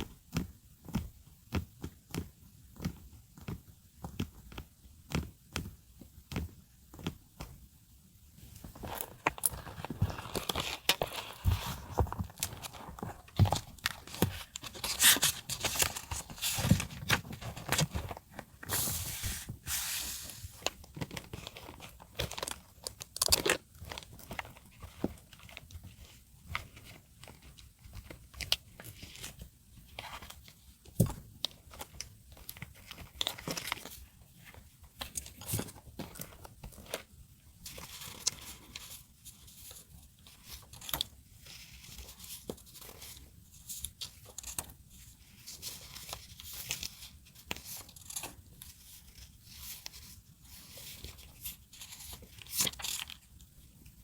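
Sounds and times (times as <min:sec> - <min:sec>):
paper and tape rustling and tearing: 0:08.8 - 0:22.6, 0:40.3 - 0:53.3.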